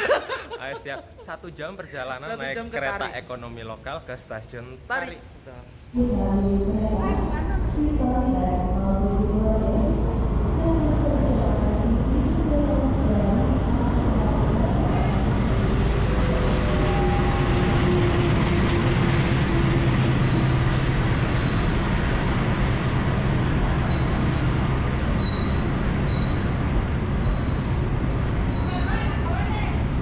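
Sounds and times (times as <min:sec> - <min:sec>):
diesel locomotive engine running: 0:06.3 - 0:29.1
train carriages rumbling past: 0:06.8 - 0:30.0
train brake squeals: 0:20.2 - 0:21.9, 0:23.8 - 0:24.2, 0:25.2 - 0:26.6, 0:27.2 - 0:27.8, 0:28.5 - 0:29.4.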